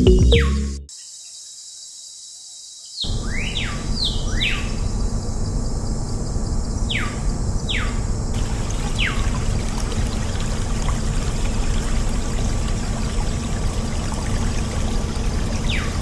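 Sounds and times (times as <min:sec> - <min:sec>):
water pouring: 0:08.4 - 0:16.0.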